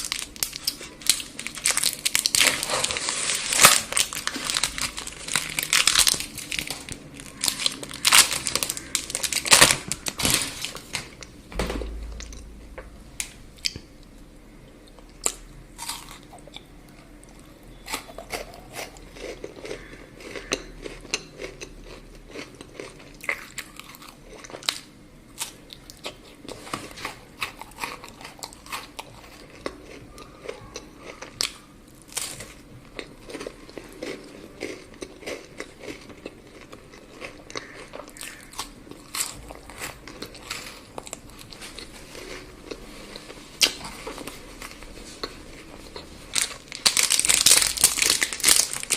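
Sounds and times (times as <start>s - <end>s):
chocolate crunching: 0.0s - 11.3s, 14.7s - 48.9s
chewing with mouth clicks: 14.7s - 24.9s, 25.7s - 46.8s.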